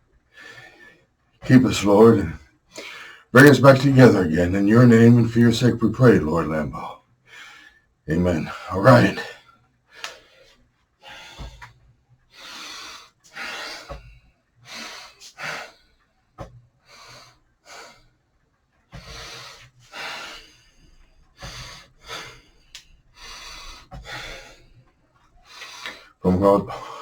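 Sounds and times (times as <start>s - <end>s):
person breathing noisily: 19.0s - 24.8s.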